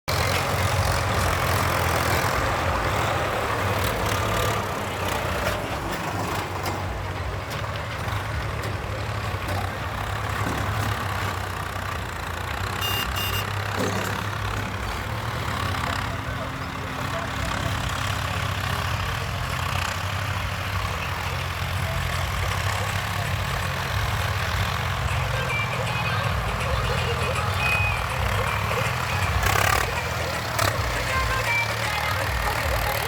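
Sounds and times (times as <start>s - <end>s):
diesel earthmoving machine running: 0.1s - 33.0s
short high beeps: 12.8s - 13.6s.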